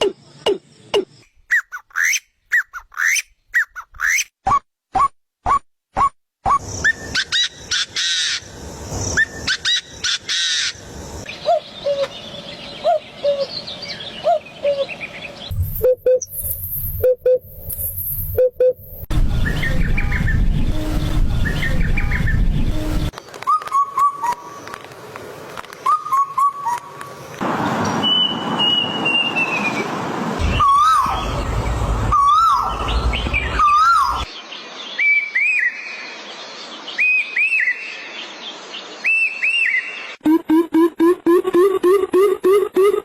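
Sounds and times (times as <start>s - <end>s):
birds calling: 27.6s - 34.4s.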